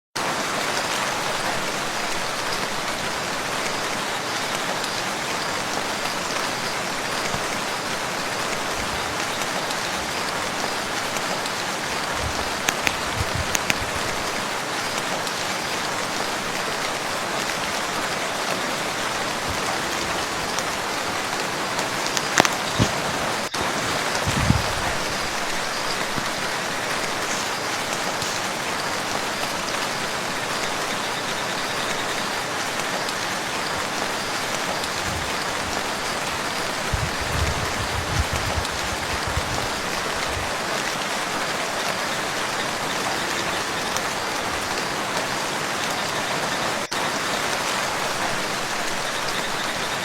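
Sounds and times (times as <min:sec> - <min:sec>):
rain falling on a lake: 0:00.2 - 0:50.0
sharp raindrop taps: 0:08.4 - 0:15.2, 0:19.2 - 0:30.9, 0:32.7 - 0:41.0.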